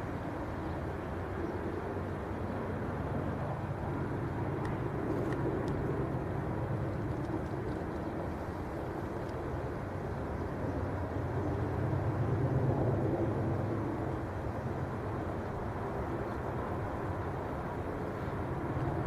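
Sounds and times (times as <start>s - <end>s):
faint ticks: 9.2s - 9.4s.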